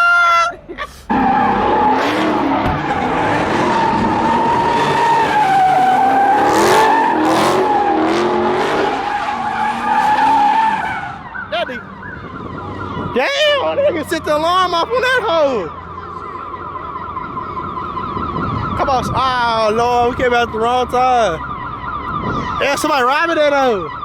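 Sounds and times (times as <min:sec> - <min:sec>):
car tyres squealing: 0:00.0 - 0:14.4
car engine running hard: 0:01.1 - 0:10.0.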